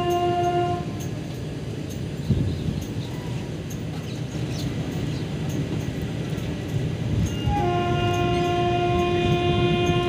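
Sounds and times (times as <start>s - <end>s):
train horn blast: 0.0s - 1.0s, 7.4s - 10.0s
train rumbling on rails: 0.0s - 10.0s.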